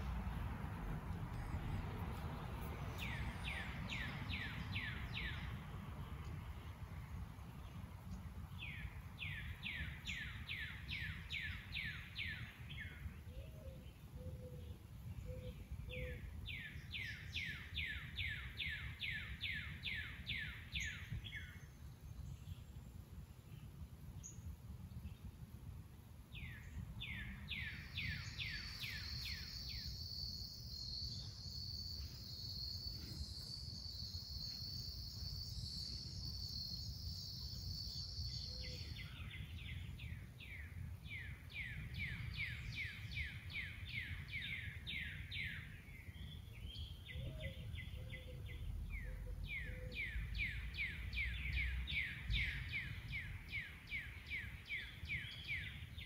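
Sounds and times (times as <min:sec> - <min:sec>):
songbird calling: 0:02.6 - 0:05.6, 0:26.3 - 0:56.0.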